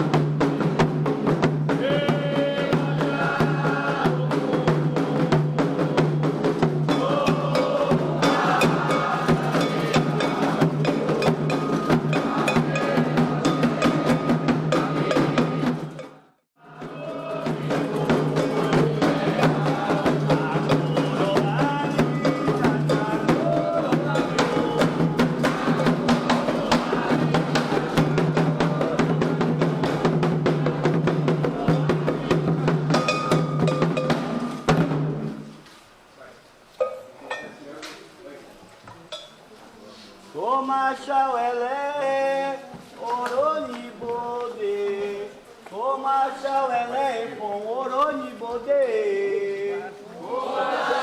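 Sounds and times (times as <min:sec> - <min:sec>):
clacking percussion: 0:00.0 - 0:16.2, 0:16.8 - 0:35.1
voices singing: 0:00.0 - 0:34.9, 0:40.3 - 0:51.0
hand drums playing fast rhythm: 0:00.0 - 0:35.2.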